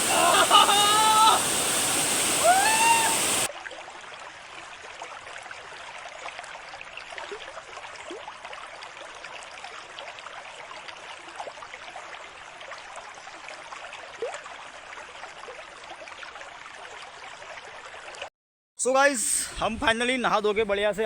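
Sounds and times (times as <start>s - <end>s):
river water rushing: 0.0s - 3.5s.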